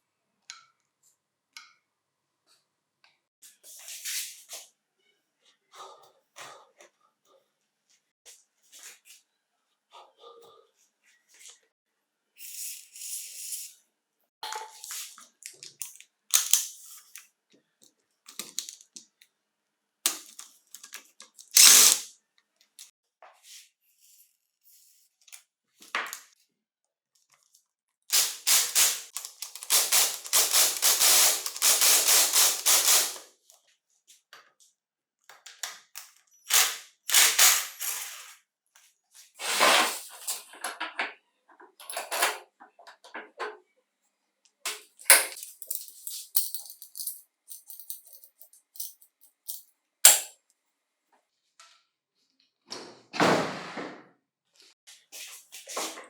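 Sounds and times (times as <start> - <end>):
hand tools clicking on metal: 45.1 - 50.3.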